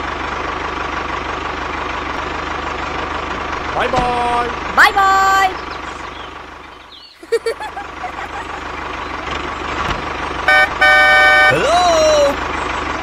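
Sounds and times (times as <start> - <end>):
tractor engine throbbing: 0.0 - 13.0
horn honking: 10.4 - 12.4.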